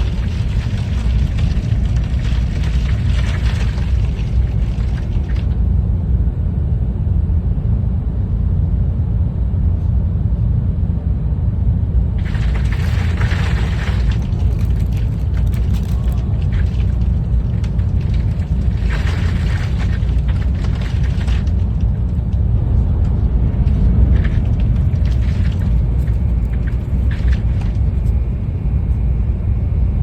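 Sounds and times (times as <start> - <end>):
ice crackling against train: 0.0 - 5.7, 12.2 - 29.0
train running rumble: 0.0 - 8.4, 11.8 - 30.0.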